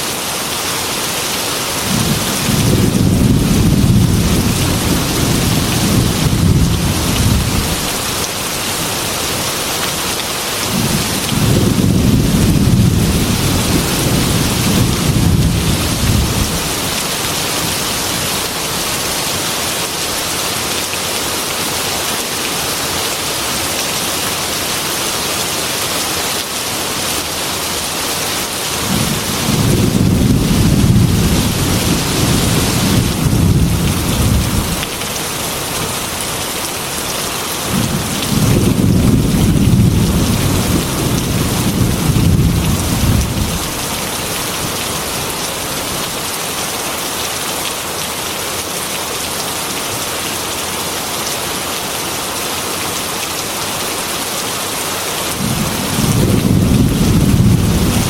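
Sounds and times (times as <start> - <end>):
heavy rain on a window: 0.0 - 58.0
thunder rumbling: 1.9 - 7.9, 10.7 - 17.0, 28.8 - 36.2, 37.7 - 44.1, 55.4 - 58.0.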